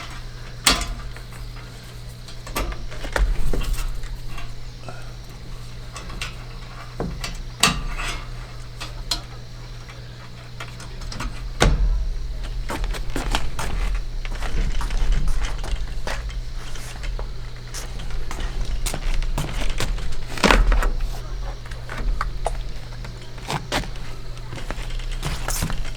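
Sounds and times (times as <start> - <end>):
steady low hum: 0.0 - 25.9
camping gear knocks and clicks: 10.5 - 25.9.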